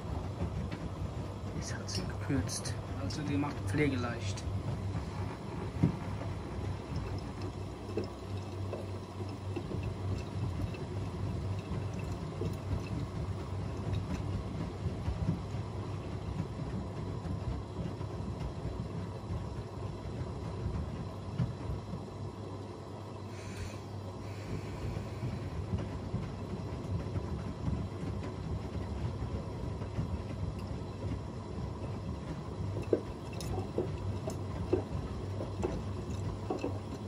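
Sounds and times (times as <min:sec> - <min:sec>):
low motor hum: 0:00.0 - 0:37.0
water swishing in washing machine: 0:00.0 - 0:37.0.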